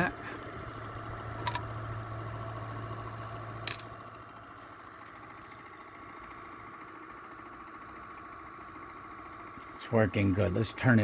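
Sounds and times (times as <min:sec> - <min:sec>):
low hum: 0:00.0 - 0:10.9
sharp click: 0:01.4 - 0:01.7.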